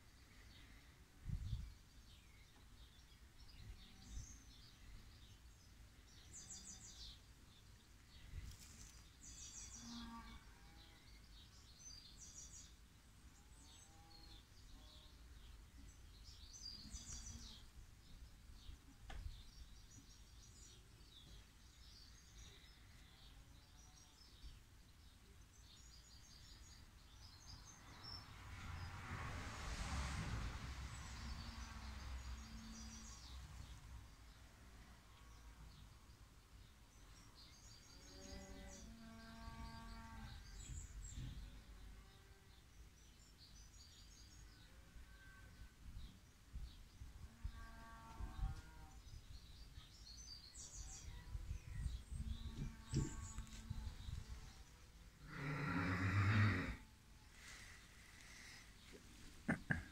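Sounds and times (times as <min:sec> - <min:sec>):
small birds chirping: 0:00.0 - 0:28.9, 0:32.2 - 0:34.4, 0:46.0 - 0:56.8, 0:57.4 - 0:59.9.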